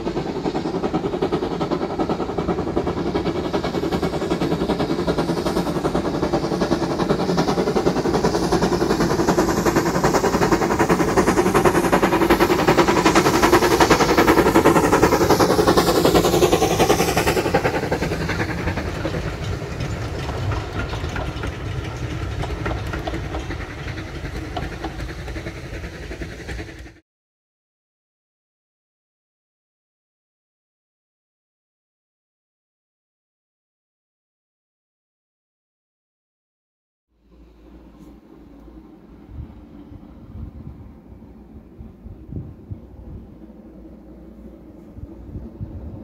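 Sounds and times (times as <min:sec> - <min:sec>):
train wheels clattering on rails: 0:00.0 - 0:27.0.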